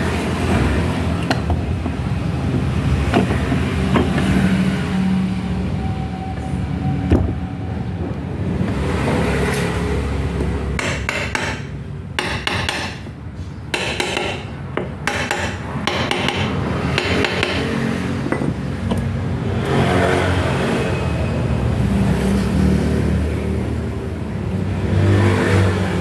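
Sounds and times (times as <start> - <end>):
metallic knocks and clicks of tools: 10.4 - 13.1, 13.7 - 19.1.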